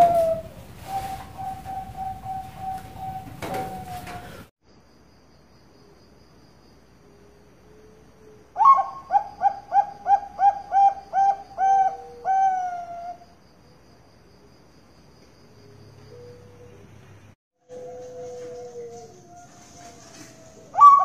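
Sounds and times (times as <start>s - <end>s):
dove cooing: 0.0s - 4.5s, 7.7s - 13.2s, 17.7s - 21.0s.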